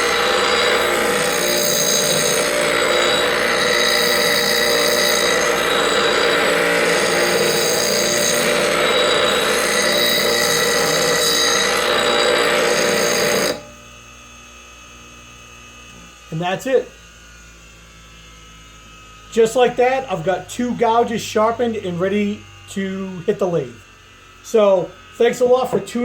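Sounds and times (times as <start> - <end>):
bench grinder grinding steel: 0.0 - 13.9.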